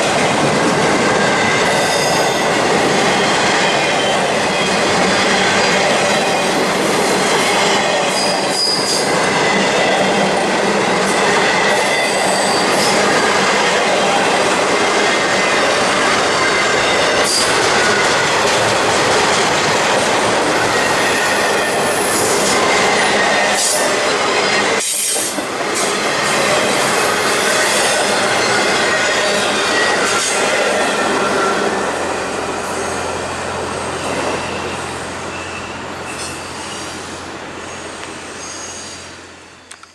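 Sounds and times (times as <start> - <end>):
railroad cars rumbling on rails: 0.0 - 39.9
high-pitched wheel squeal: 3.8 - 10.3, 37.7 - 39.1.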